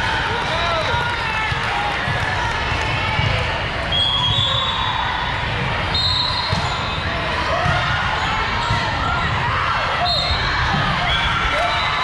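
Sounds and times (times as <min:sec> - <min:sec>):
referee whistle: 0:03.9 - 0:05.0, 0:05.9 - 0:07.0, 0:10.0 - 0:10.5
balls bouncing on gym floor: 0:05.5 - 0:09.7.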